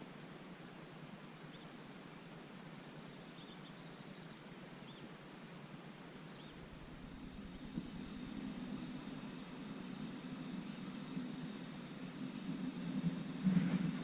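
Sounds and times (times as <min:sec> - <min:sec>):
steady outdoor hiss: 0:00.0 - 0:14.0
small bird chirping: 0:01.5 - 0:01.8, 0:02.5 - 0:05.2, 0:06.3 - 0:12.2
low rushing noise: 0:06.5 - 0:14.0.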